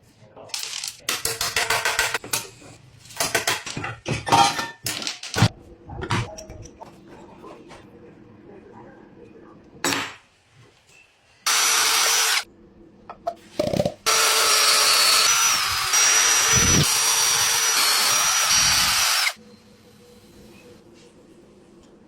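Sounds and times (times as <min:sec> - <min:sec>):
power tool motor whining: 0:11.5 - 0:12.4, 0:14.1 - 0:19.4.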